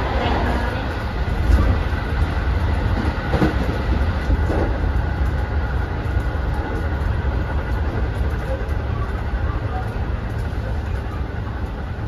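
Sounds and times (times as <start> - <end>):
train wheels rumbling on rails: 0.0 - 12.0
train car body noise: 1.3 - 7.0.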